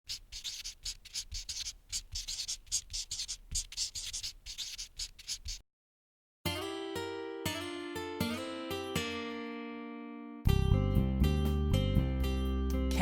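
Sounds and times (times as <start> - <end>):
writing tool scratching: 0.0 - 5.6
acoustic guitar music: 6.5 - 13.0.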